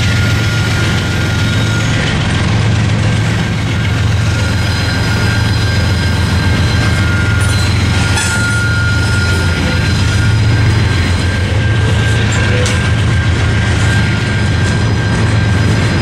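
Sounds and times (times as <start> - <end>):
freight train wheels rumbling: 0.0 - 16.0
train cars clanking: 0.0 - 16.0
electronic crossing bell ringing: 4.3 - 16.0.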